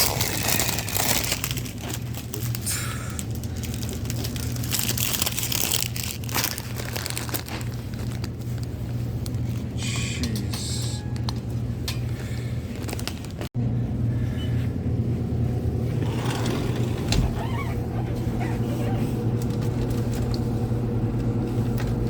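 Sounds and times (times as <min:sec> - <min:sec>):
plastic packaging crinkling: 0:00.0 - 0:09.7, 0:12.7 - 0:13.5
steady low hum: 0:00.0 - 0:22.0.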